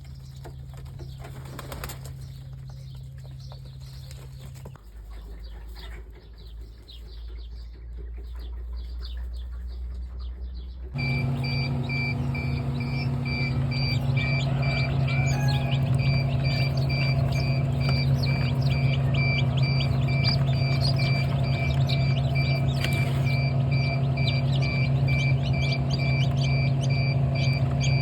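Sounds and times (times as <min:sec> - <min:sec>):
small birds chirping: 0:00.0 - 0:28.0
electronic beeps: 0:11.0 - 0:28.0
steady low hum: 0:11.0 - 0:28.0.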